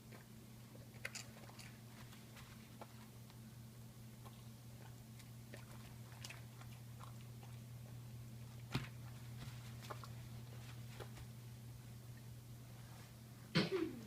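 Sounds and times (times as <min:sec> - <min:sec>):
pet crunching crackers: 0:00.0 - 0:11.2
low steady hum: 0:00.0 - 0:14.0.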